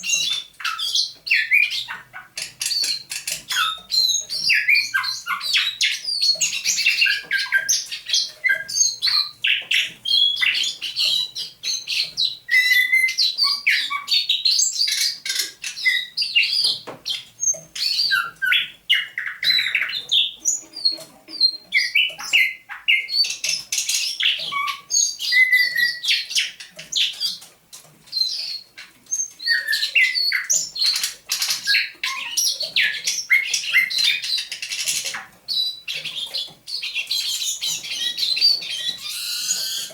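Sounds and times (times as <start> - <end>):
nightingale singing: 0.0 - 27.4, 28.1 - 39.9.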